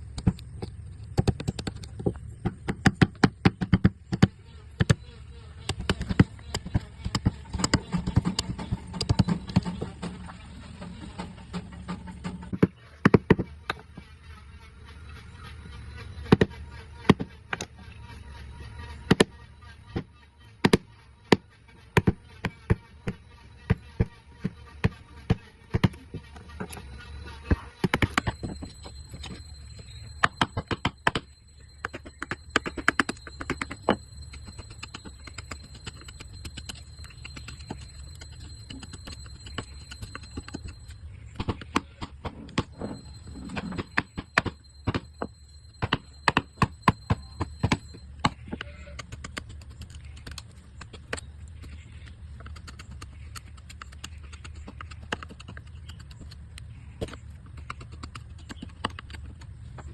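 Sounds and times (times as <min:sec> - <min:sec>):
faint high tone: 0:13.7 - 0:49.0.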